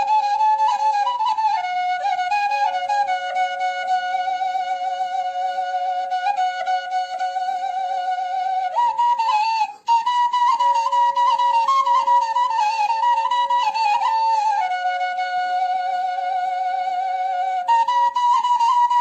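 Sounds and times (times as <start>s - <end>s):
flute-like wind instrument melody: 0.0s - 19.0s.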